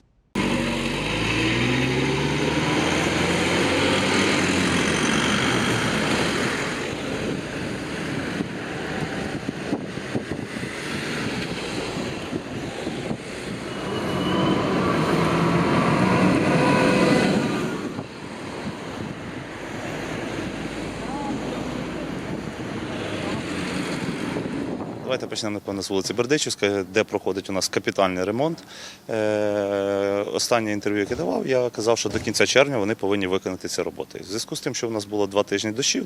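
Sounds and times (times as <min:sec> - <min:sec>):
vehicles passing on street: 0:00.4 - 0:27.8.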